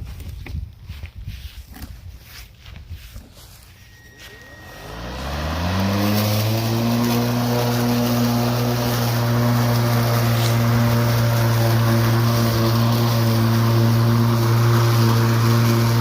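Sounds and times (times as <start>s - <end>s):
electric lawn mower whining: 3.3s - 16.0s.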